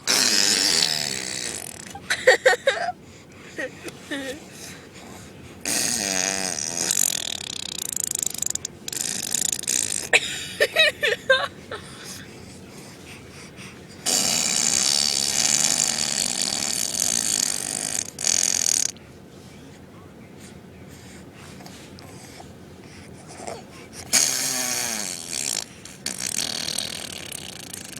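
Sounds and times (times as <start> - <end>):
mouth fart noises: 0.0 - 2.0, 5.6 - 10.2, 14.1 - 19.0, 24.1 - 27.9.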